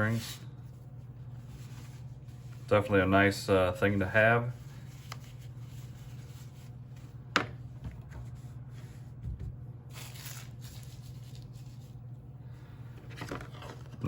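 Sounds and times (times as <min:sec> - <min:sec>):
steady low hum: 0:00.0 - 0:14.0
packaging rustling: 0:09.9 - 0:11.9.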